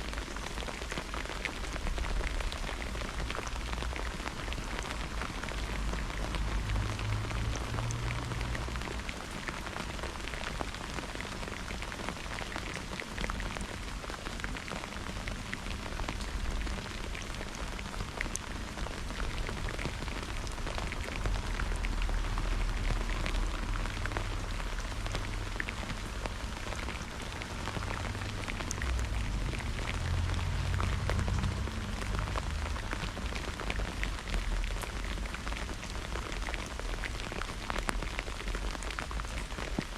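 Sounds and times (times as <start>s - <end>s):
rain drops ticking: 0.0s - 39.9s.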